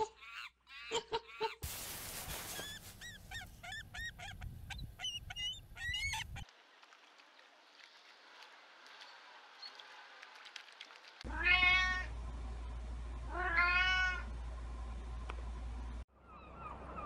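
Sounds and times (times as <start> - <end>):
low steady hum: 11.3 - 17.0.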